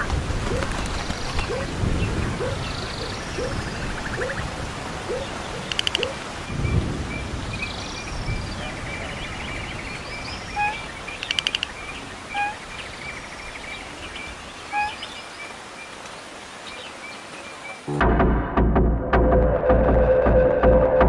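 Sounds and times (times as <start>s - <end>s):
birds chirping: 0.0s - 17.9s
bird clicking notes: 5.6s - 6.2s, 10.6s - 11.8s
short loud bird calls: 10.3s - 13.0s, 14.6s - 15.2s.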